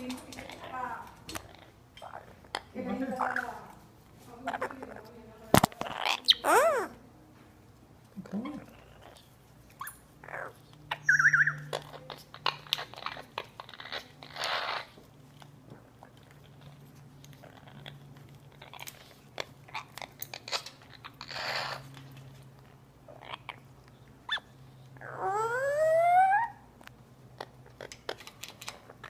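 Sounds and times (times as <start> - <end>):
parrot chewing and biting: 0.1 - 7.0, 8.0 - 26.0, 26.6 - 29.0
parrot hissing: 14.2 - 15.0, 21.2 - 21.9.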